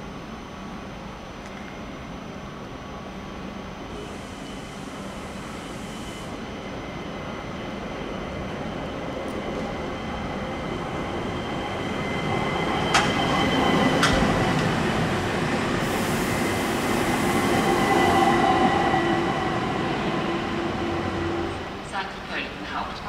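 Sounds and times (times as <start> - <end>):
train rolling noise: 0.0 - 23.0
high squealing from train wheels: 3.9 - 22.0.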